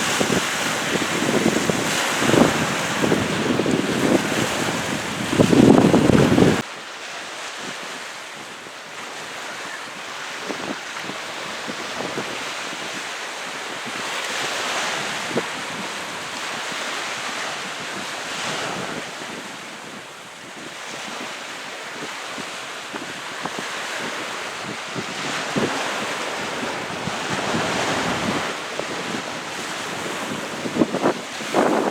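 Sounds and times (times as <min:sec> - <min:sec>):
wind gusting on microphone: 0:00.0 - 0:06.6, 0:07.6 - 0:31.9
waves washing onto shore: 0:00.0 - 0:31.9.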